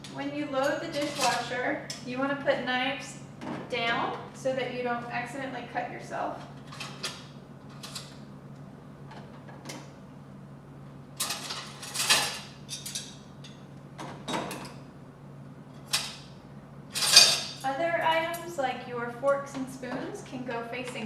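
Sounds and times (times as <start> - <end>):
silverware clattering: 17.0 - 17.6.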